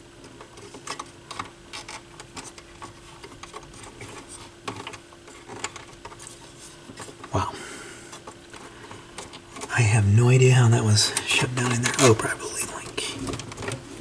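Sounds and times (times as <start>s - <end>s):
faint steady hum: 0.0s - 14.0s
parts clicking and rattling: 0.2s - 7.4s, 8.1s - 9.8s, 13.0s - 14.0s.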